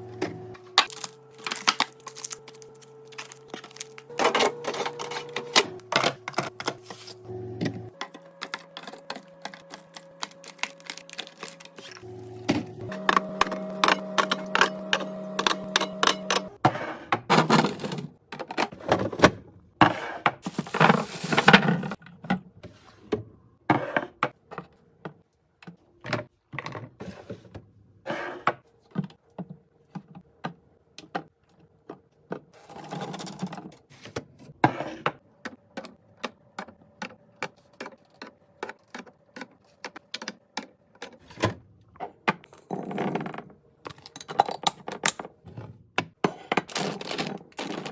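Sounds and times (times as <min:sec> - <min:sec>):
rustling or scraping: 0:20.0 - 0:22.0
containers clicking and clunking: 0:28.8 - 0:47.9.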